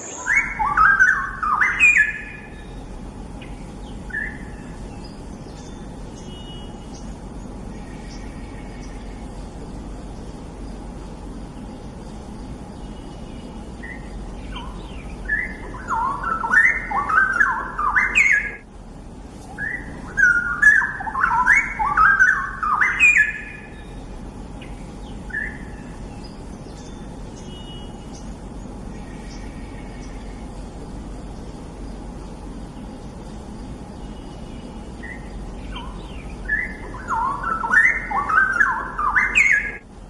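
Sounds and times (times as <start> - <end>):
bird warbling whistles: 0.0 - 2.6, 13.8 - 18.6, 19.6 - 23.8, 35.0 - 39.8
low background hum: 0.0 - 40.0.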